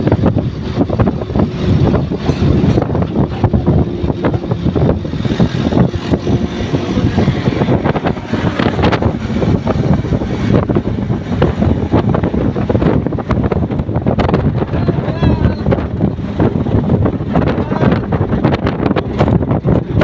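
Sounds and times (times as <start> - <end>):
motorcycle engine: 0.0 - 15.0
road noise: 0.0 - 20.0
wind buffeting microphone: 0.0 - 20.0.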